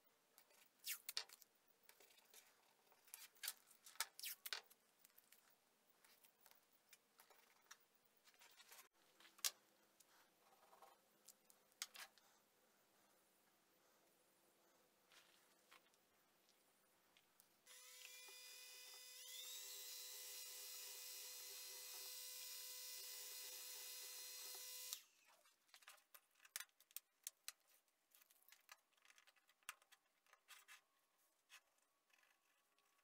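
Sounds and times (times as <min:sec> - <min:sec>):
electric tool motor whining: 0:17.7 - 0:25.1.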